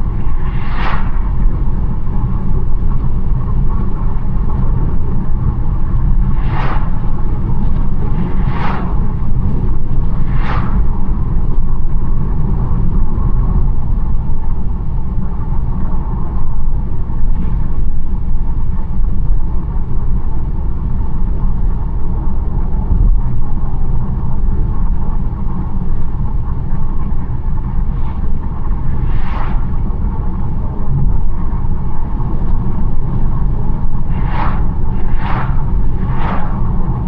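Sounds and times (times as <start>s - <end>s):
faint swishes: 0.0s - 4.1s, 5.6s - 12.1s, 27.0s - 37.0s
car tyre and engine rumble: 0.0s - 37.0s.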